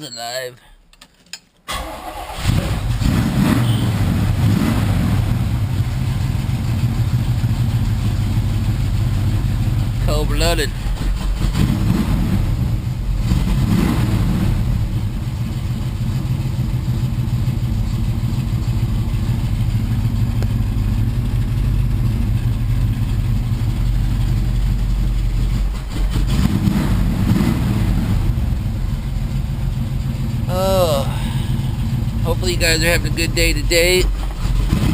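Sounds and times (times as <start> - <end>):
person talking: 0.0 - 0.8, 10.0 - 10.7, 30.5 - 31.5, 32.2 - 34.1
car engine revving: 2.0 - 34.9.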